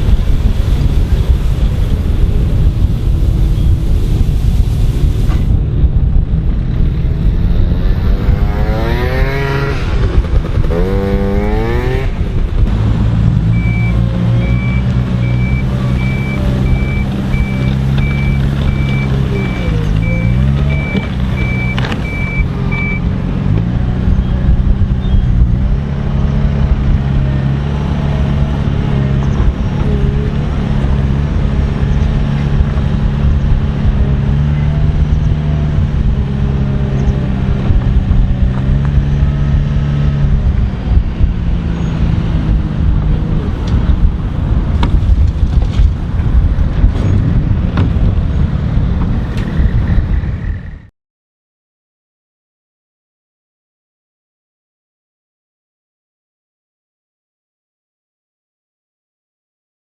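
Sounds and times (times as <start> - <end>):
diesel machinery engine revving: 7.2 - 44.7
reversing alarm beeping: 13.6 - 23.0.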